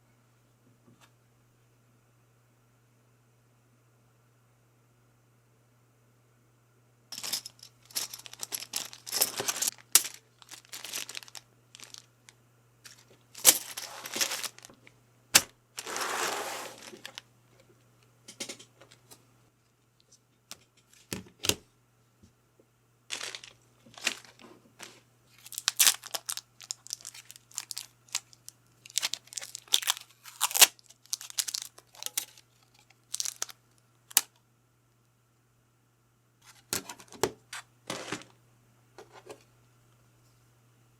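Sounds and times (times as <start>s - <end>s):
packaging tearing and crinkling: 8.0s - 12.1s, 12.9s - 14.7s, 23.1s - 24.4s, 25.3s - 34.3s
small hard parts clicking: 25.4s - 34.3s.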